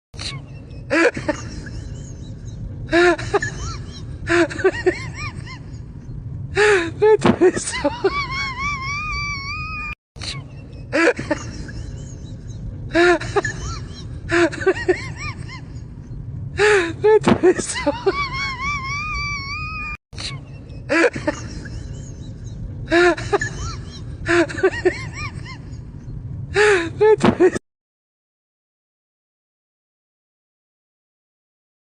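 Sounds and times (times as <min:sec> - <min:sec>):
low rumble: 0:00.5 - 0:19.9, 0:20.5 - 0:27.1.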